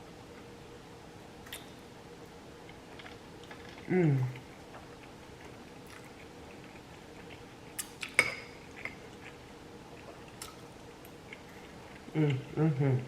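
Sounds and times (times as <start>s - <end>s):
cutlery clinking against a dish: 8.1s - 9.0s.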